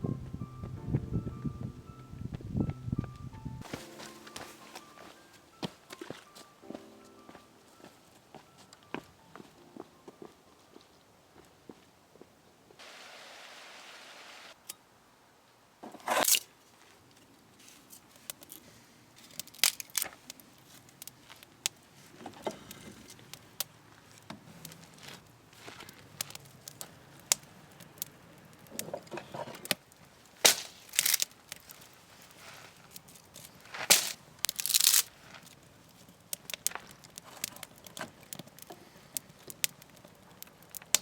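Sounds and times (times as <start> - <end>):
campfire crackling: 3.6 - 8.9, 16.5 - 41.0.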